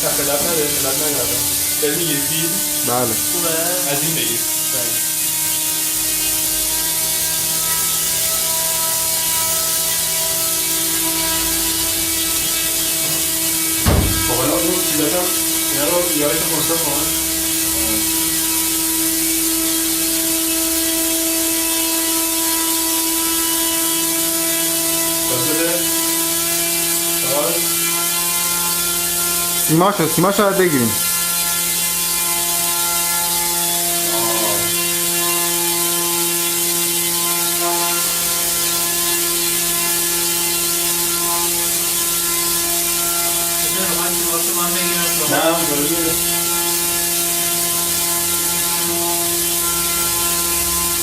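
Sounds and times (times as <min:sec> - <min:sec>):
small rotor engine whine: 0:00.0 - 0:29.7, 0:30.6 - 0:51.0.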